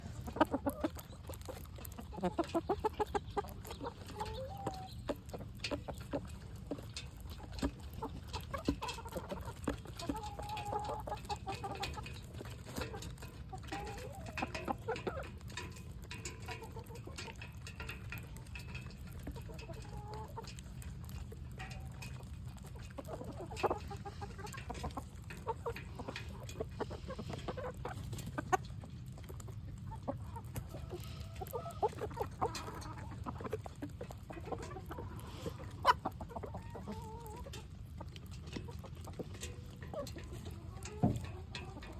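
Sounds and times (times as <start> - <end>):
chickens clucking: 0.0 - 41.9.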